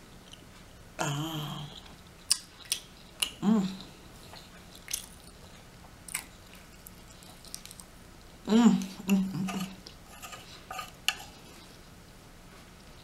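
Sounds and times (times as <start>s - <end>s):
person chewing: 1.6s - 8.0s
wet mouth clicks and smacks: 2.2s - 3.4s, 4.6s - 5.4s.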